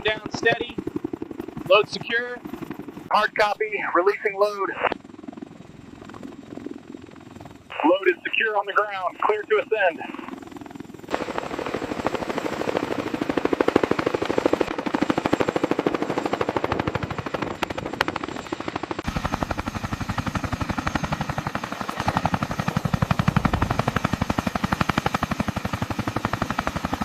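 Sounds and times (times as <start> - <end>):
helicopter rotor thumping: 0.0 - 3.7, 10.3 - 27.0.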